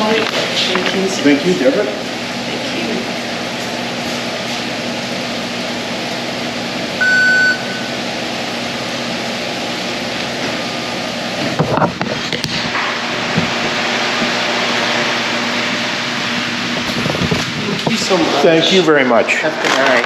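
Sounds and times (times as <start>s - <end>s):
ventilation hum: 0.0s - 20.0s
high electronic beep: 7.0s - 8.0s.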